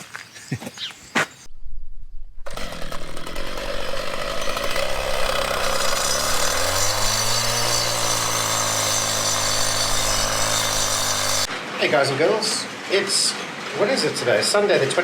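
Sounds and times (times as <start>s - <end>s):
power tool motor running: 2.5s - 11.5s.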